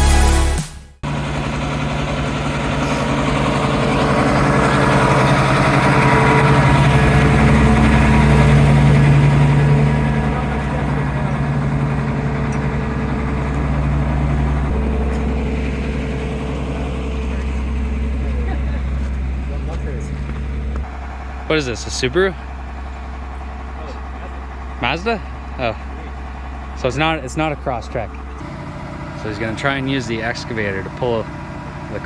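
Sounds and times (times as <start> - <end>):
music: 0.0 - 1.0
engine running steadily: 0.0 - 32.0.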